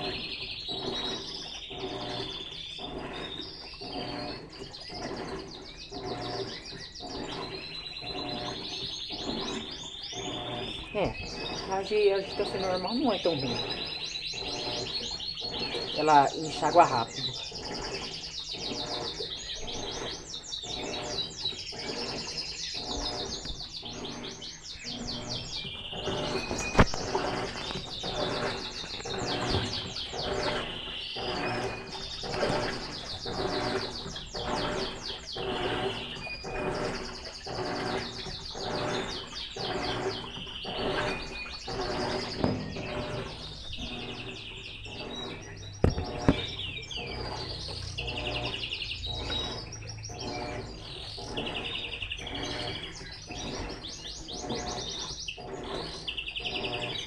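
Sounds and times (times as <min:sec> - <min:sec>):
small birds chirping: 0:00.0 - 0:57.0
washing machine swishing: 0:00.0 - 0:57.0
sharp knocks: 0:45.8 - 0:46.6.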